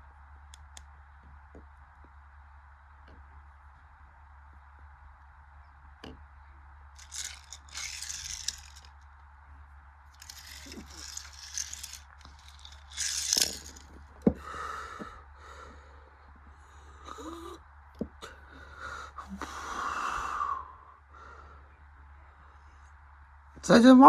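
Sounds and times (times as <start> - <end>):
scraping and rustling: 7.0 - 8.9, 10.2 - 14.0.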